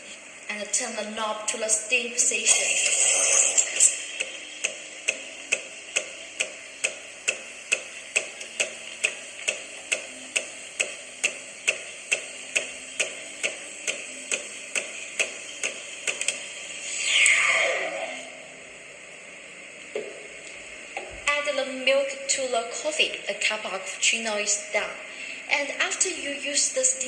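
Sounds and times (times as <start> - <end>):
steam wand hissing: 2.4 - 18.6
sharp regular clicks: 4.2 - 16.4.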